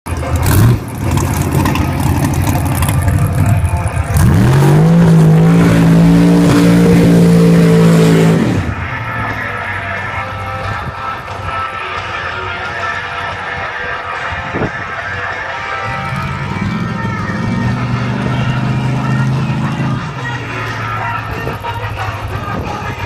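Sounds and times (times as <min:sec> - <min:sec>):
drag-racing car engine revving: 0:00.1 - 0:10.8, 0:15.5 - 0:22.4.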